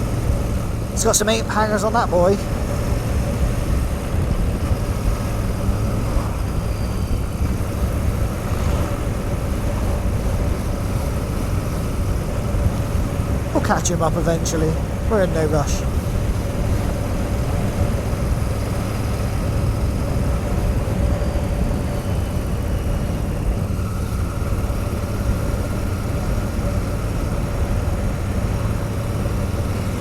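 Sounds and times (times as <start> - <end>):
motorcycle engine cruising: 0.0 - 30.0
wind rush on microphone: 2.4 - 13.6.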